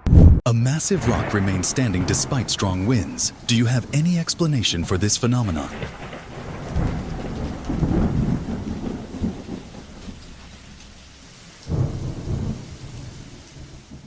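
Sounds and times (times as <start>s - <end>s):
heavy low rumbling: 0.0s - 0.4s
strong wind: 0.0s - 0.4s
rain: 0.9s - 14.0s.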